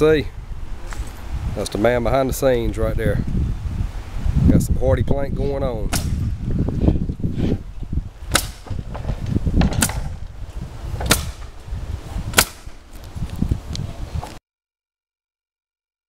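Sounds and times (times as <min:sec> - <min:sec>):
nail gun firing: 0:05.9 - 0:06.3, 0:08.3 - 0:09.0, 0:09.6 - 0:10.2, 0:11.0 - 0:11.6, 0:12.3 - 0:12.8.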